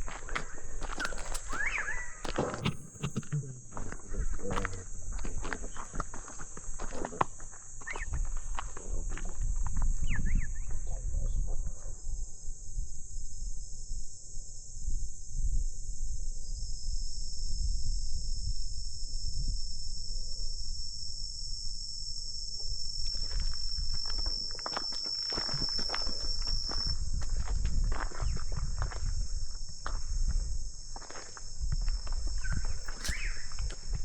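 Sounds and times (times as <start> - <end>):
insect single high note: 0.0 - 6.9, 11.9 - 34.0
footsteps: 0.0 - 9.9, 23.1 - 34.0
high-pitched insect chorus: 0.0 - 34.0.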